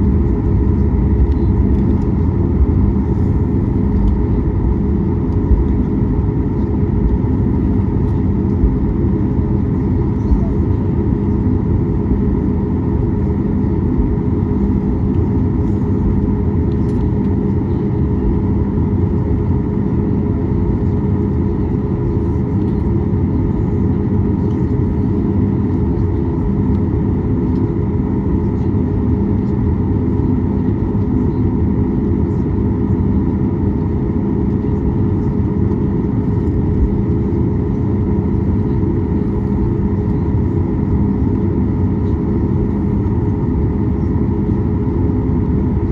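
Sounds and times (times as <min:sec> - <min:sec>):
jet engines droning in cabin: 0:00.0 - 0:45.9.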